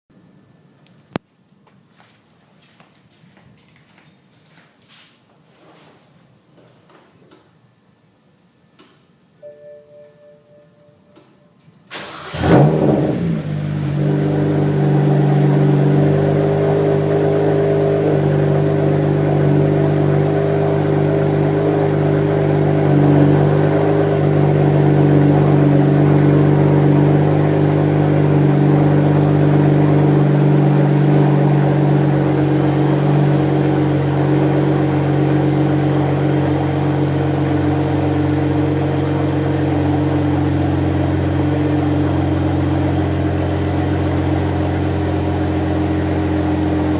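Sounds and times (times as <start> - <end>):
car engine idling: 11.9 - 46.9.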